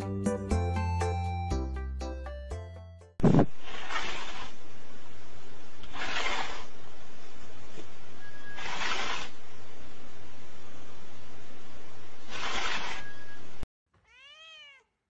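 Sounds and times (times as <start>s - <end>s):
steady hum and hiss: 3.4s - 13.6s
cat hissing: 3.6s - 4.5s, 5.9s - 6.7s, 8.5s - 9.4s, 12.3s - 13.0s.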